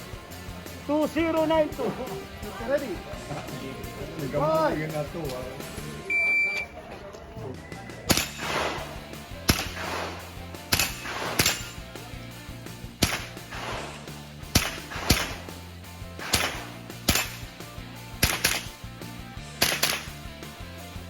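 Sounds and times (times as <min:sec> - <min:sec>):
rifle shots with echo: 0:08.1 - 0:11.8, 0:13.0 - 0:15.6, 0:16.2 - 0:17.6, 0:18.2 - 0:18.7, 0:19.6 - 0:20.1.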